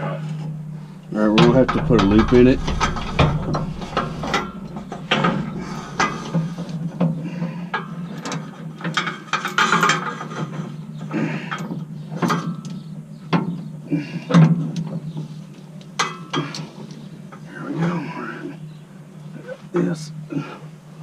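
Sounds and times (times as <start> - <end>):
steady low hum: 0.8 - 7.5
metal knocks: 1.4 - 6.9.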